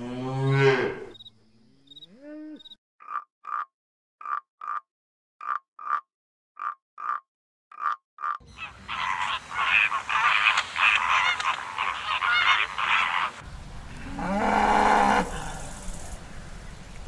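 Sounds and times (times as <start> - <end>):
cow mooing: 0.0 - 2.8, 13.9 - 15.6
flamingos honking: 8.4 - 15.5.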